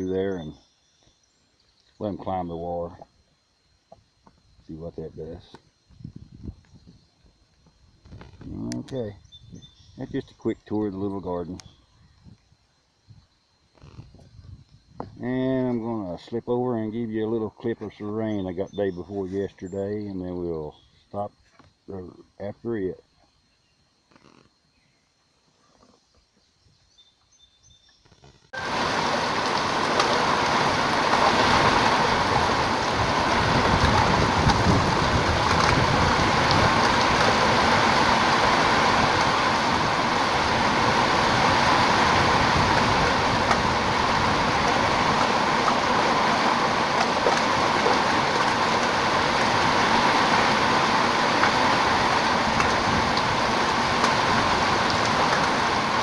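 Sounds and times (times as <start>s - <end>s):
rain falling steadily: 28.6s - 56.0s.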